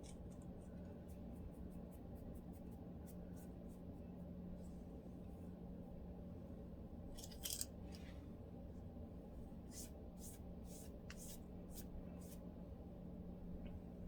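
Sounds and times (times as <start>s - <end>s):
faint steady hum: 0.0s - 14.0s
comb scratching through scalp: 9.7s - 12.4s.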